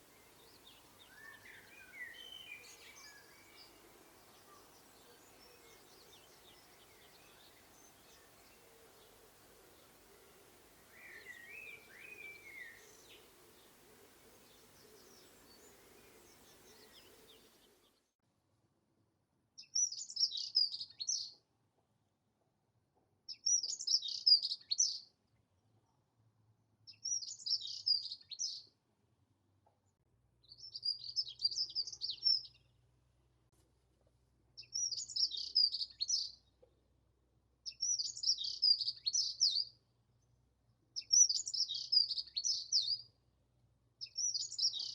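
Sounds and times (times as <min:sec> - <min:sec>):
bird warbling song: 0:00.0 - 0:18.0, 0:37.7 - 0:39.7, 0:41.0 - 0:43.0, 0:44.0 - 0:44.9
faint outdoor hiss: 0:00.0 - 0:22.3, 0:26.4 - 0:44.9.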